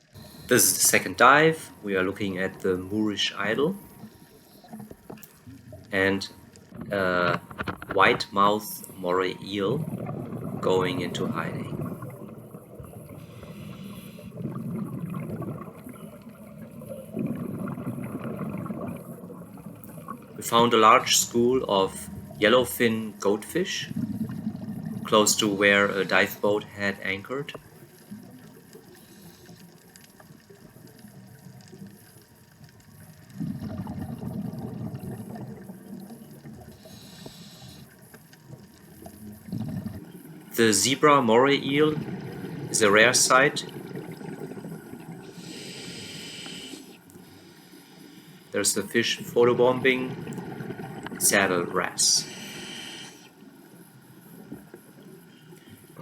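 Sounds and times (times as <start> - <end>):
underwater water wash: 0.0 - 56.0
short hiss: 45.3 - 48.4.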